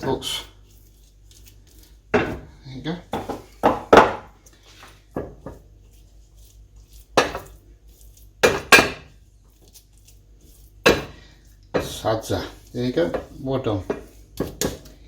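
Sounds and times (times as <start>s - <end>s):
spoon scraping a dish: 4.5s - 14.9s.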